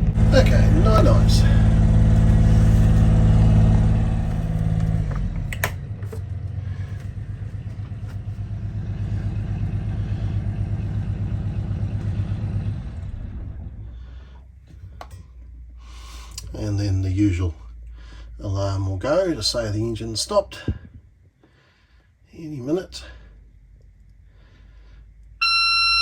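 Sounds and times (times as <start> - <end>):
marine diesel engine idling: 0.0 - 14.5
clicks: 4.4 - 6.3.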